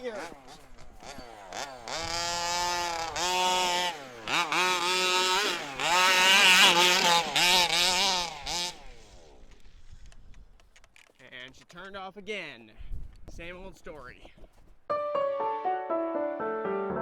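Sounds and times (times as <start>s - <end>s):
rc buggy engine revving: 0.0s - 11.9s.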